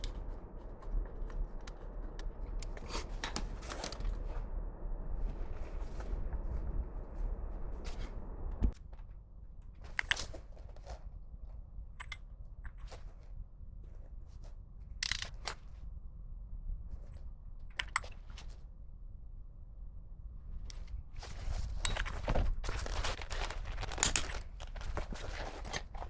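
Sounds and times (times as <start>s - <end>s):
tools clicking and clinking: 23.4s - 26.0s.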